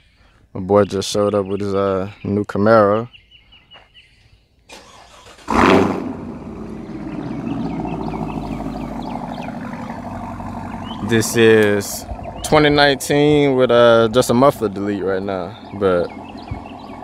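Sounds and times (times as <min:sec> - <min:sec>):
car engine starting and idling: 0:04.7 - 0:17.0.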